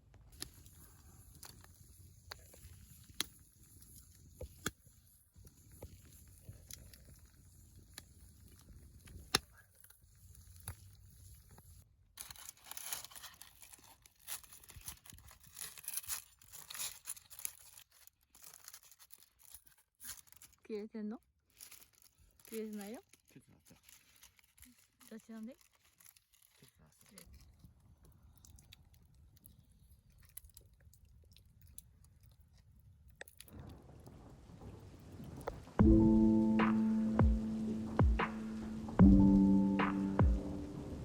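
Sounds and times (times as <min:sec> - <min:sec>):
wood fire crackling: 0:00.0 - 0:12.9, 0:27.3 - 0:41.0
low fire rumble: 0:33.4 - 0:41.0.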